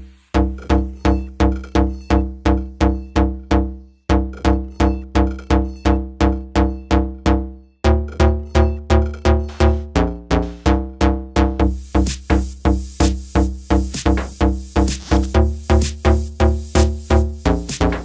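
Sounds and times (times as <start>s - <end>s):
deep repeating electronic note: 0.3s - 18.0s.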